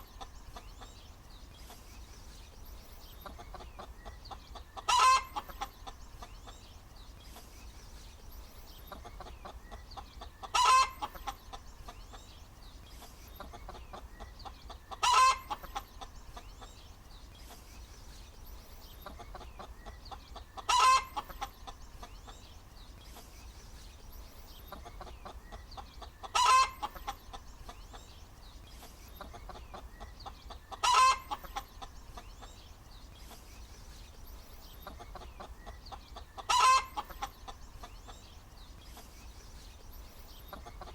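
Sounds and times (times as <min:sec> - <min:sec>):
hen cackling: 0:03.2 - 0:06.0, 0:08.9 - 0:12.0, 0:13.4 - 0:16.1, 0:20.4 - 0:21.8, 0:24.7 - 0:27.4, 0:29.2 - 0:31.9, 0:35.0 - 0:37.6.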